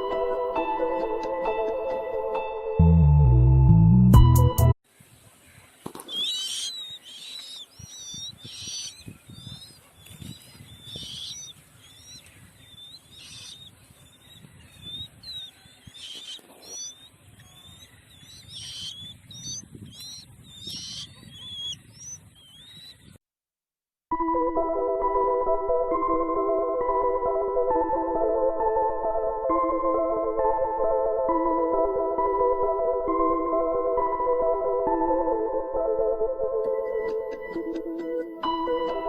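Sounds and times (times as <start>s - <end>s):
birds chirping: 5.0s - 23.2s, 36.7s - 39.0s.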